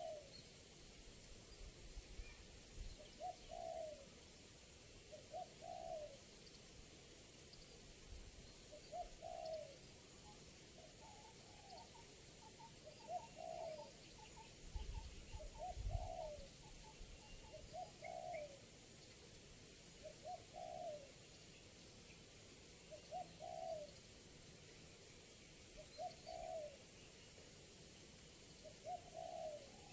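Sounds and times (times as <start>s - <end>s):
dove cooing: 0.0s - 0.3s, 3.2s - 4.1s, 5.1s - 6.2s, 8.8s - 9.8s, 12.8s - 13.9s, 15.3s - 16.6s, 17.5s - 18.6s, 20.0s - 21.2s, 22.9s - 24.0s, 25.8s - 26.8s, 28.6s - 29.9s.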